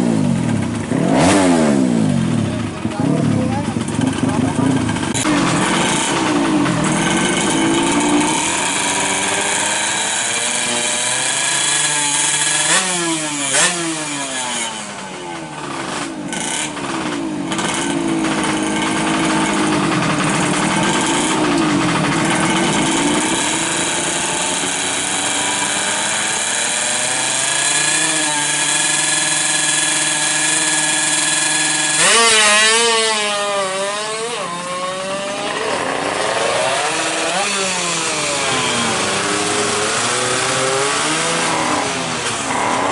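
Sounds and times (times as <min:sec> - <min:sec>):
two-stroke engine throttle blips: 0:00.0 - 0:42.9.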